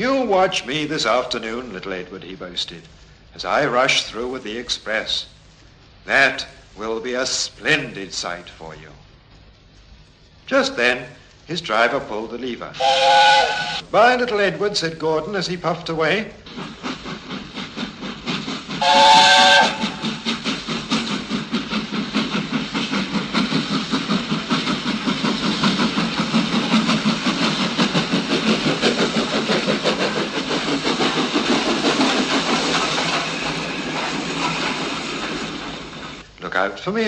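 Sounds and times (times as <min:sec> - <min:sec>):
steam locomotive chuffing: 0:00.0 - 0:37.0
steam locomotive whistle: 0:12.8 - 0:13.9, 0:18.8 - 0:20.0.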